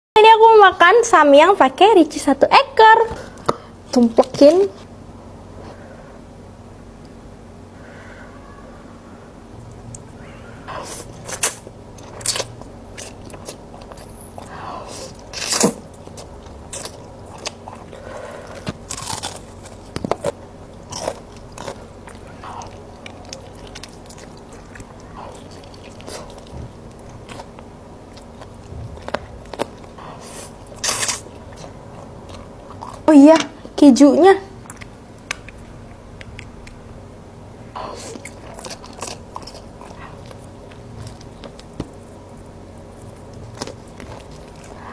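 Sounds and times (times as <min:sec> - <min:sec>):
crisp biting and chewing: 0:10.8 - 0:33.1, 0:37.9 - 0:44.8
sharp crunch: 0:18.6 - 0:21.8.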